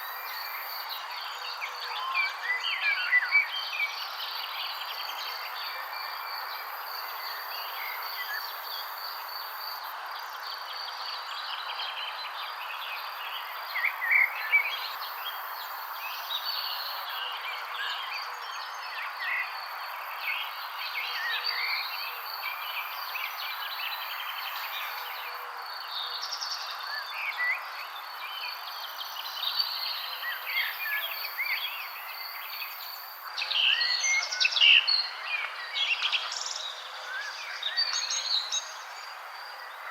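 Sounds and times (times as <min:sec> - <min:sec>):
songbirds chirping: 0:00.0 - 0:39.9
background hiss: 0:19.5 - 0:39.9.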